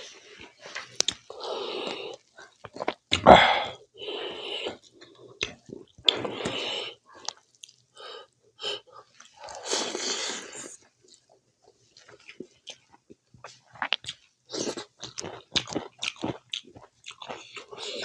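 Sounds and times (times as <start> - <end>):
wet chewing and smacking: 2.1 - 3.2, 10.8 - 18.0.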